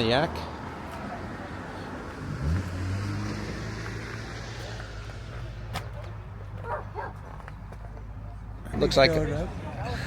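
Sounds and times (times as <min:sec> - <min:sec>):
dog barking: 0:06.6 - 0:07.3.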